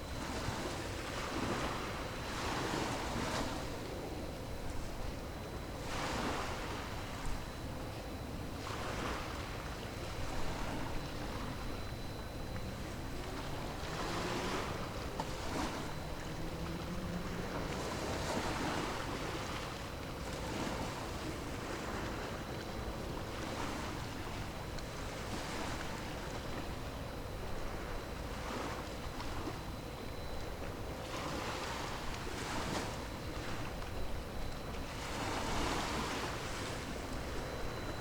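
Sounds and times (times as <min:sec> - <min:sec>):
faint low hum: 0:00.0 - 0:38.0
waves washing in: 0:10.2 - 0:26.9, 0:30.8 - 0:38.0.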